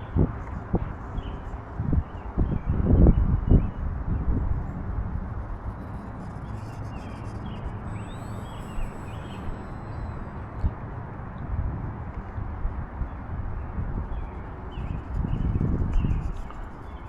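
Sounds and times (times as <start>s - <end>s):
wind buffeting microphone: 0.0s - 17.0s
faint high chirps: 5.6s - 10.8s.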